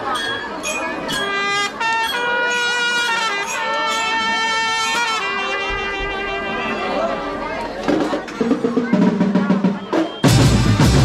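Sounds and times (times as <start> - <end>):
brass section long notes: 1.3 - 7.2.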